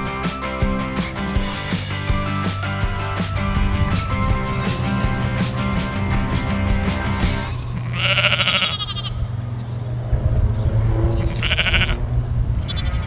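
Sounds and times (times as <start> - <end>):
lamb bleating: 7.9 - 9.2, 11.2 - 12.0.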